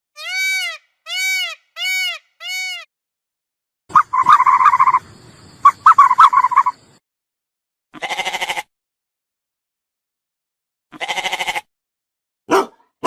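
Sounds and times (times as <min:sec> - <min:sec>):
sheep or goat bleating: 0:08.0 - 0:08.7, 0:10.9 - 0:11.7
dog barking: 0:12.5 - 0:13.0.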